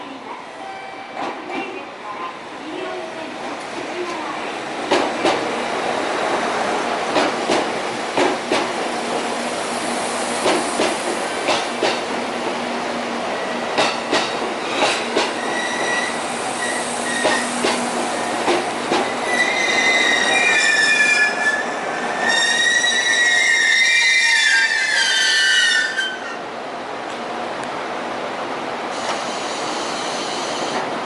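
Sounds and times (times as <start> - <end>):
train wheels clacking: 7.1 - 9.2, 10.4 - 12.6, 13.7 - 20.3
high-pitched brake squeal: 15.4 - 17.4, 19.2 - 26.4, 29.0 - 30.8.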